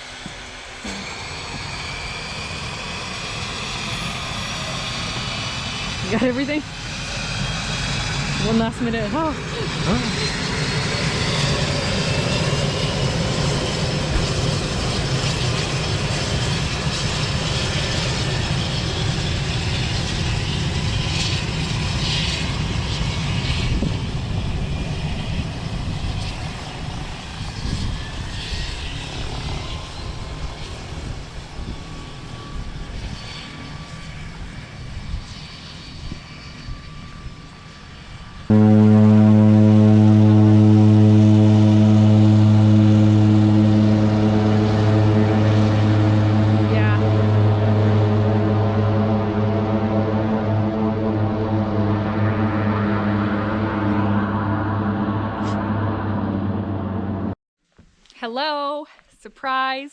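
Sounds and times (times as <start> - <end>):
loud steady hum: 0.0 - 18.2, 38.5 - 57.4
propeller plane engine running: 0.0 - 57.4.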